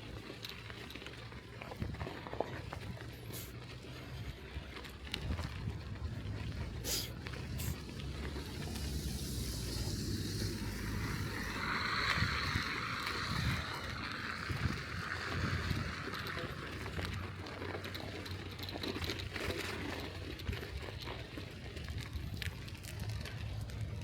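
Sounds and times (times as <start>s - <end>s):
bicycle tyre noise on snow: 0.0s - 24.0s
wind rumble on microphone: 1.6s - 3.3s, 4.0s - 18.4s, 19.0s - 24.0s
hiss: 6.8s - 7.8s, 8.8s - 13.0s.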